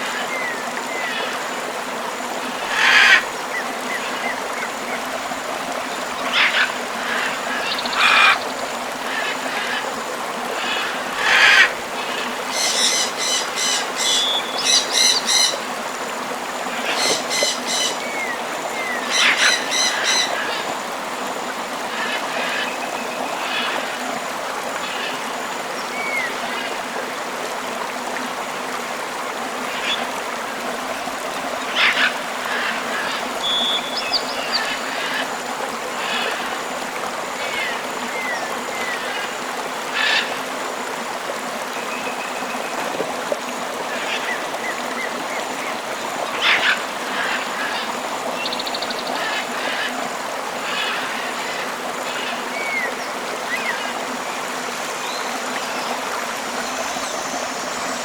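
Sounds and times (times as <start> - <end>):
river flowing: 0.0 - 58.0
tropical birds calling: 2.5 - 9.9, 10.6 - 15.7, 16.7 - 20.8, 31.5 - 36.6, 43.9 - 54.0.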